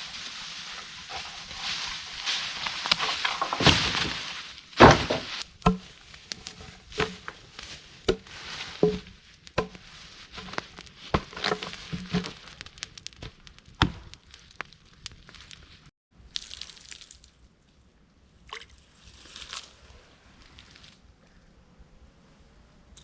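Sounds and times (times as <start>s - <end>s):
sharp knocks and clunks: 3.0s - 5.9s, 8.8s - 9.8s.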